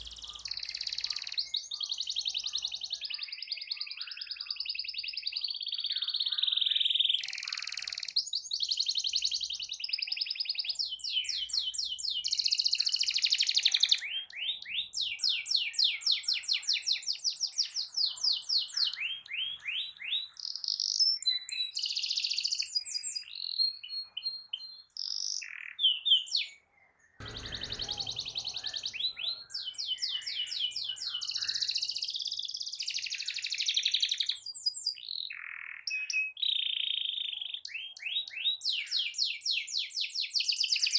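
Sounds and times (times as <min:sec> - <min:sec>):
canary singing trills: 0:00.0 - 0:26.6
low thump: 0:27.2 - 0:29.8.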